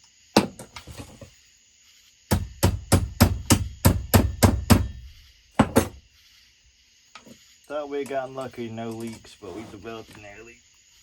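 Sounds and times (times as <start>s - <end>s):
hammer strikes: 2.3s - 5.0s, 5.6s - 6.0s.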